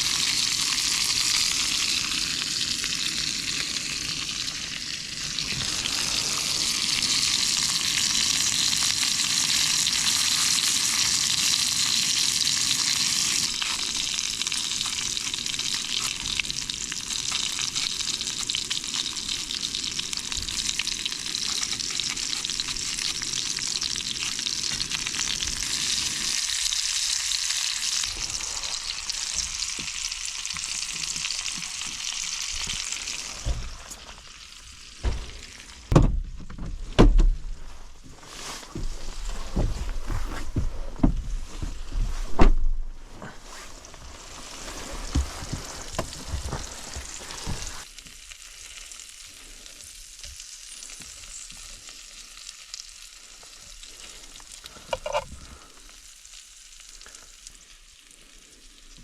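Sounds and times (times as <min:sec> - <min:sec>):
meat sizzling in a pan: 0:00.0 - 0:35.9, 0:43.4 - 0:59.0
thump: 0:33.4 - 0:33.7, 0:35.0 - 0:37.4, 0:41.0 - 0:42.8.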